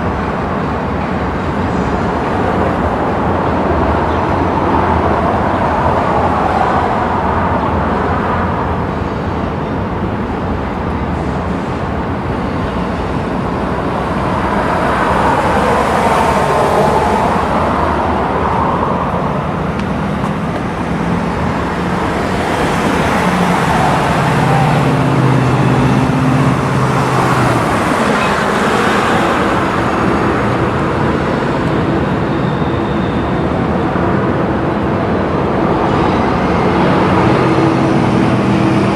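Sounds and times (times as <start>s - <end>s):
road traffic passing: 0.0s - 38.9s.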